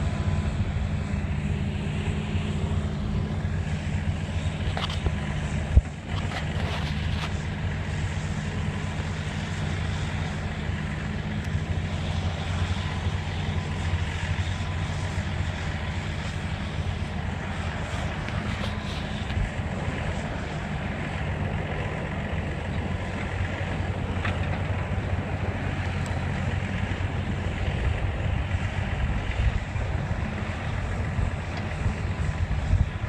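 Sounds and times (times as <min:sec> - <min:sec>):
diesel engines running: 0:00.0 - 0:33.0.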